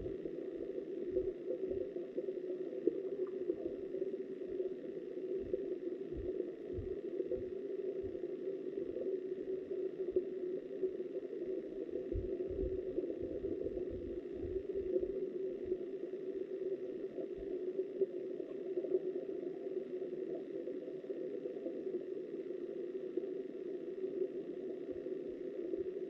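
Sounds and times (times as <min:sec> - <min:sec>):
muffled underwater river rush: 0:00.0 - 0:26.0.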